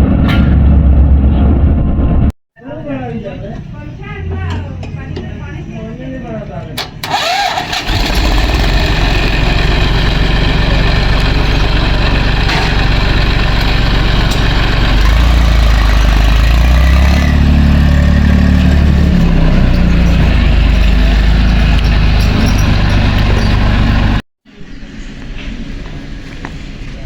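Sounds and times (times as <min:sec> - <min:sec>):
tractor engine running: 0:06.8 - 0:24.2.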